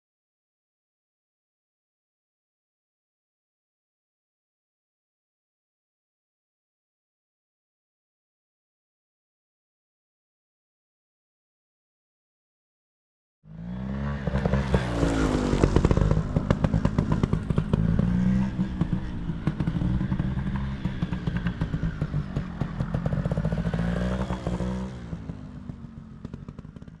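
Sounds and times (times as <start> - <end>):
motorcycle engine revving: 13.5 - 27.0.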